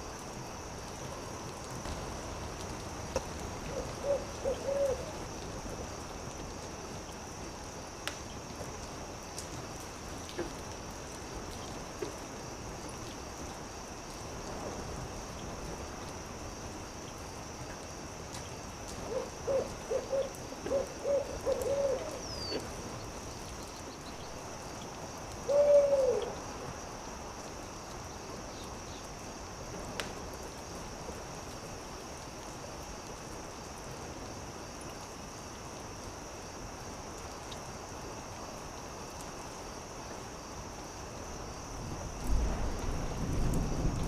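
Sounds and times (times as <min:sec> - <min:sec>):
campfire crackling and popping: 0:00.1 - 0:03.9, 0:05.2 - 0:19.4, 0:28.7 - 0:35.1
owl hooting: 0:03.7 - 0:05.2, 0:19.1 - 0:22.6, 0:25.5 - 0:26.4.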